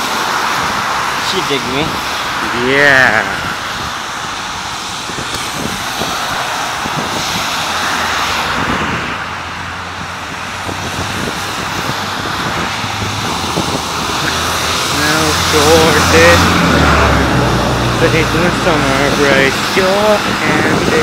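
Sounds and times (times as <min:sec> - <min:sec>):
traffic on wet road: 0:00.0 - 0:21.0
vehicle engine hum: 0:00.0 - 0:21.0
rain hissing: 0:10.5 - 0:20.6.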